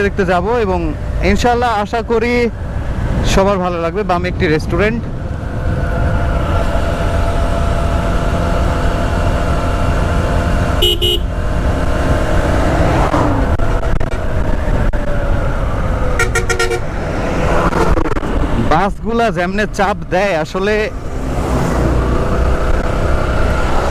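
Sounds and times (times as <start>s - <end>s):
motorcycle wind and road rumble: 0.0s - 23.9s
vehicle horn beeping: 10.8s - 11.4s, 16.2s - 16.9s.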